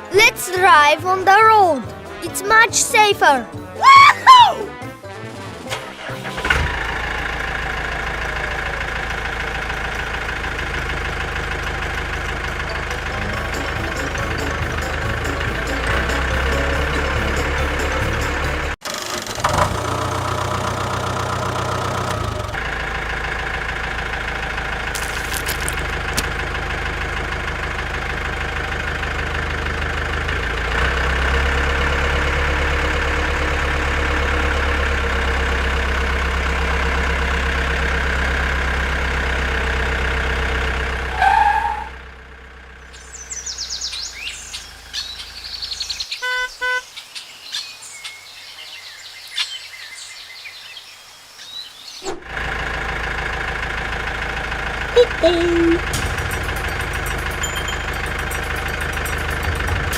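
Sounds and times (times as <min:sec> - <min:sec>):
tractor engine running: 0:00.0 - 0:46.8, 0:52.1 - 0:59.9
birds chirping: 0:42.8 - 0:52.2
short horn beeps: 0:46.2 - 0:46.8.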